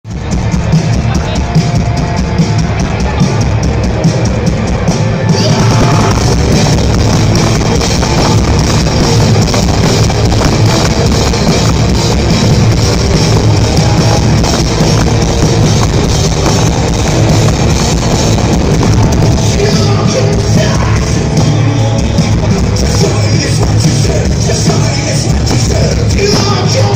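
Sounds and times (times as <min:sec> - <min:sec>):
heavy rock band playing: 0:00.0 - 0:26.9.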